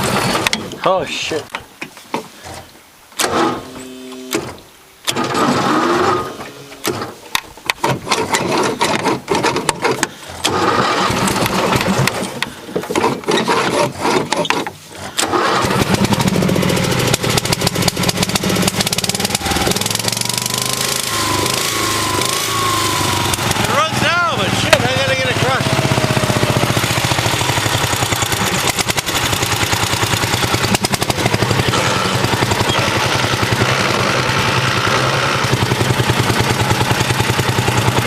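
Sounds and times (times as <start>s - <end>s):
engine cranking on weak battery: 0.0s - 0.6s, 3.2s - 7.2s, 7.8s - 38.0s
engine running: 0.0s - 0.6s, 3.2s - 38.0s.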